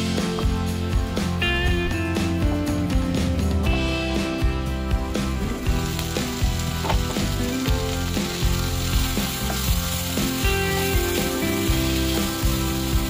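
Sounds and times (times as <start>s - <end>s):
background music with a beat: 0.0s - 13.0s
vegetables sizzling in oil: 5.1s - 13.0s.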